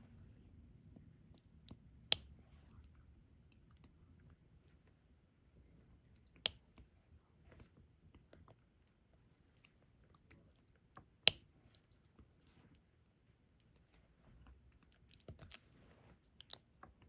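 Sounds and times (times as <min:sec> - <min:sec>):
soft clicks and taps of drill pen: 0:01.7 - 0:02.8, 0:06.2 - 0:06.9, 0:10.9 - 0:12.8.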